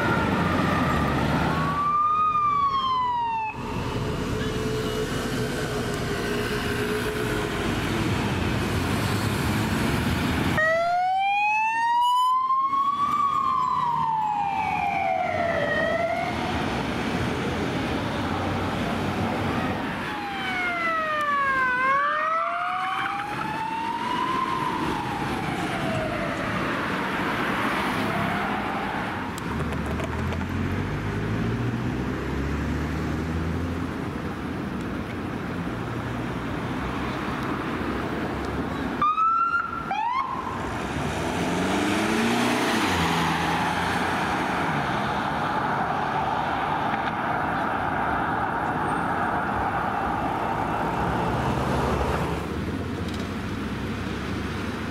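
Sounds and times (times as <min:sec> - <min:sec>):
emergency siren wailing: 0:00.0 - 0:07.6, 0:10.6 - 0:17.0, 0:19.4 - 0:29.4, 0:39.0 - 0:40.8, 0:41.7 - 0:51.4
city traffic: 0:00.0 - 0:54.9
vehicle engine pulling away: 0:40.7 - 0:45.2.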